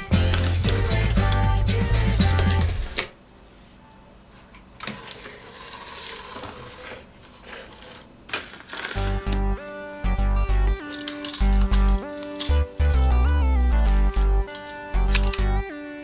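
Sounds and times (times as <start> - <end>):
background music: 0.0 - 3.0, 9.0 - 16.0
small clicks and rattles: 10.8 - 12.7.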